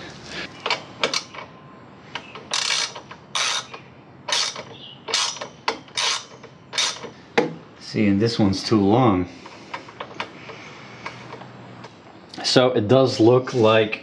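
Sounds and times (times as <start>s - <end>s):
socket ratchet clicking: 2.3s - 7.1s.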